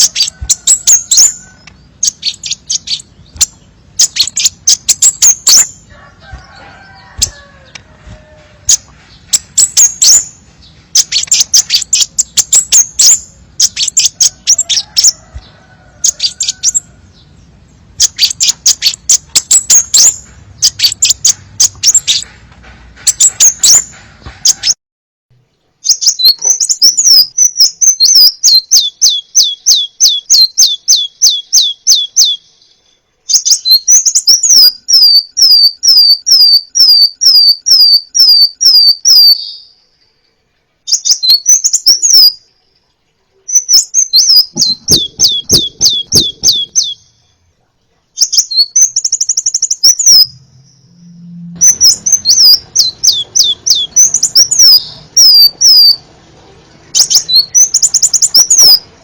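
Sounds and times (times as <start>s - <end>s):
bird chirping high and thin: 0.0s - 17.3s, 18.0s - 22.3s, 23.0s - 24.8s, 25.8s - 39.8s, 40.9s - 42.5s, 43.4s - 47.3s, 48.2s - 56.0s, 56.9s - 58.9s
bird descending high notes: 49.8s - 56.0s.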